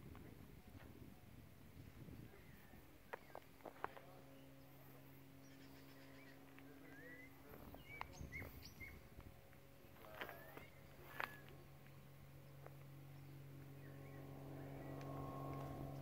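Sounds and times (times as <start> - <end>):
low steady hum: 0.0 - 16.0
birds chirping and calling: 5.4 - 9.1.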